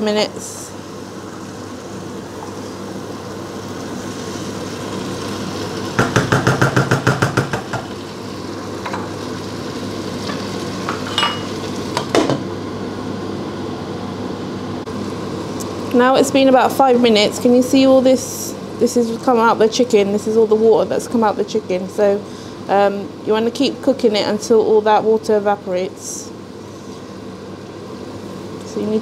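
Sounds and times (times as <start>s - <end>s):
chicken sizzling in pan: 0.0s - 13.2s.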